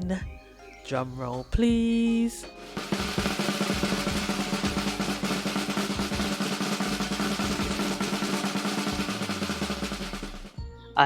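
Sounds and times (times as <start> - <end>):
held musical tones: 0.0 - 10.7
snare drum roll: 2.6 - 10.6.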